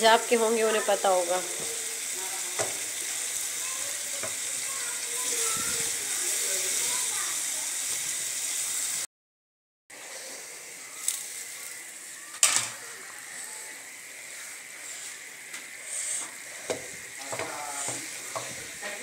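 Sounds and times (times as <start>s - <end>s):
curry sizzling in oil: 0.0s - 9.1s, 9.9s - 19.0s
wooden spoon knocking pan: 16.7s - 18.8s.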